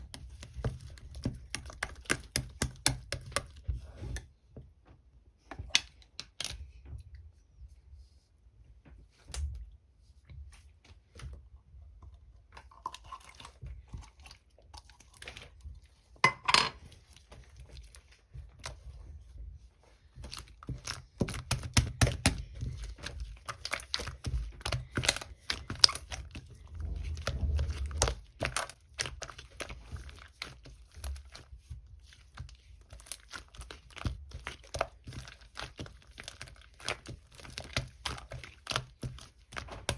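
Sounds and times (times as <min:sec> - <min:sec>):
slime squeezed with sticky pops: 0:23.0 - 0:30.3.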